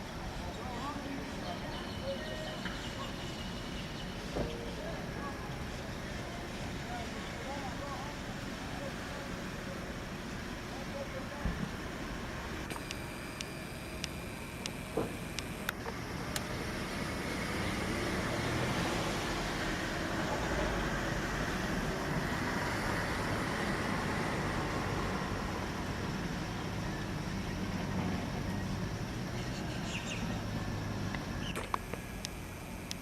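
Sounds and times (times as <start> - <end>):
road traffic rumble and hiss: 0.0 - 33.0.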